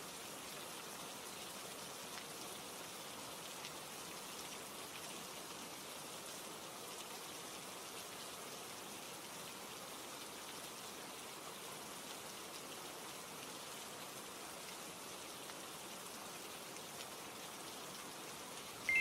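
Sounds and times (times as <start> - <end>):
rain hissing: 16.2 - 19.0.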